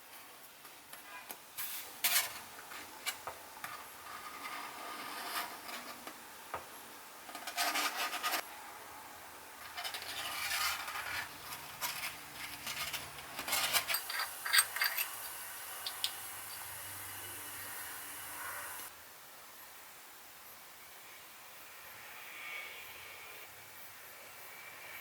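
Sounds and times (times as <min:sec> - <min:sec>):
scraping on cast iron: 0:01.6 - 0:06.2, 0:07.4 - 0:08.4, 0:09.6 - 0:16.8.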